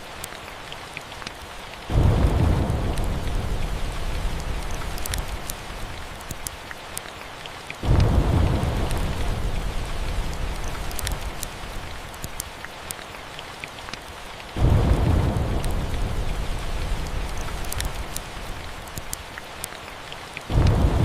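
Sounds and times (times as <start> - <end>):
steady rain: 0.0 - 21.0
sharp crackles: 1.2 - 7.1, 7.8 - 21.0
deep thunder claps: 1.9 - 6.2, 7.8 - 11.8, 14.6 - 18.8, 20.5 - 21.0.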